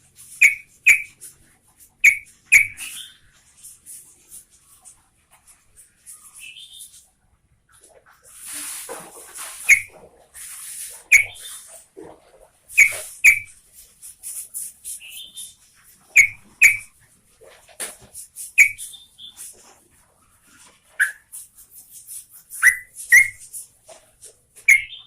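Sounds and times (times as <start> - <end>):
bird whistling and chattering: 0.3 - 1.2, 2.0 - 3.2, 9.6 - 10.0, 11.1 - 11.7, 12.7 - 13.6, 14.6 - 16.9, 18.4 - 19.5, 21.0 - 21.4, 22.1 - 23.7, 24.6 - 25.0.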